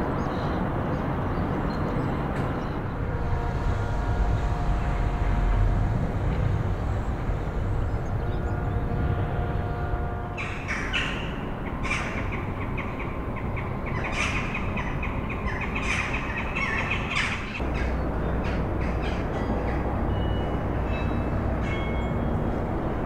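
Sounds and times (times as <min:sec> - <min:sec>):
steady low rumble: 0:00.6 - 0:13.9
birds calling: 0:06.9 - 0:23.0.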